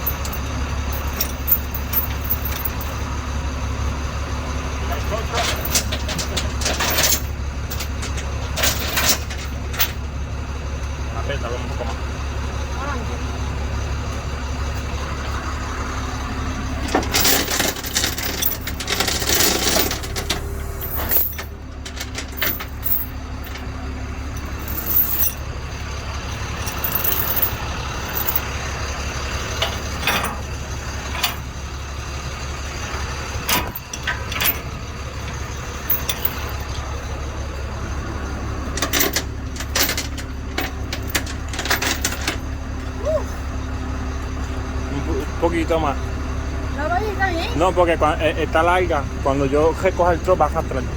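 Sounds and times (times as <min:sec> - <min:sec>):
metallic clanking of tow gear: 0:00.0 - 0:03.2, 0:04.8 - 0:10.1, 0:16.8 - 0:31.6, 0:32.3 - 0:43.0
truck engine idling: 0:00.0 - 0:50.9.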